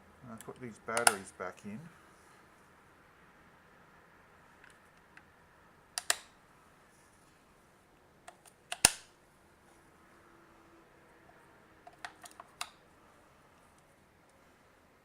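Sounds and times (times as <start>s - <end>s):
plastic clicks of batteries inserted: 0.4s - 1.2s, 6.0s - 6.3s, 8.3s - 9.1s, 11.9s - 12.8s.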